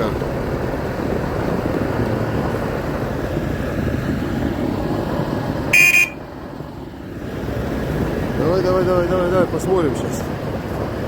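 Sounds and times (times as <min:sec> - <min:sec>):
diesel tractor engines running: 0:00.0 - 0:11.0.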